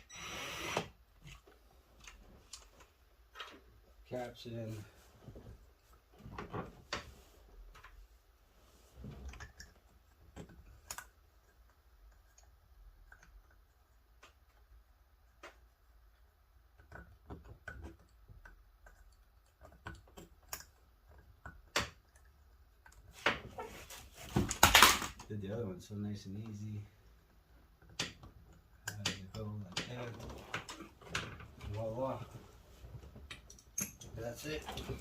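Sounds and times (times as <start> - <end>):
clicks and taps of small parts: 27.8 - 30.0.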